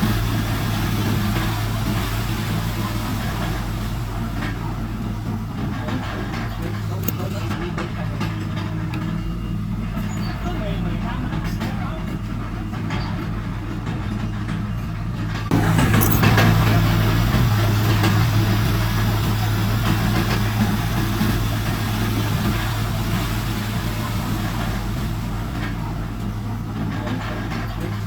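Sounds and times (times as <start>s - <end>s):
diesel machinery engine drone: 0.0s - 28.0s.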